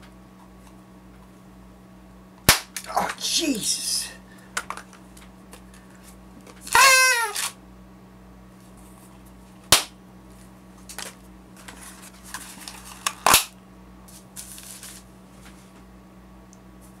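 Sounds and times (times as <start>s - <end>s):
cracker snapping: 2.4s - 3.0s, 9.7s - 10.0s, 13.0s - 13.6s
paper rustling: 10.9s - 13.1s, 14.1s - 15.7s.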